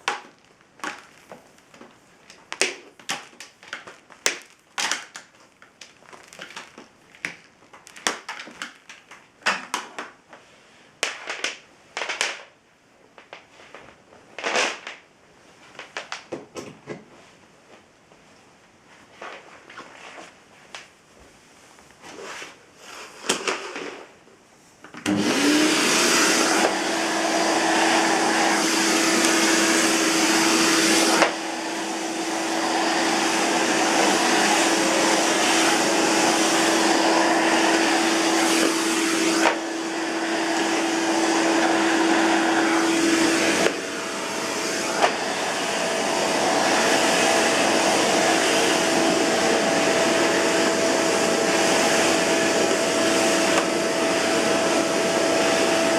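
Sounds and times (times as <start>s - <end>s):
vacuum cleaner motor whine: 25.0s - 55.9s.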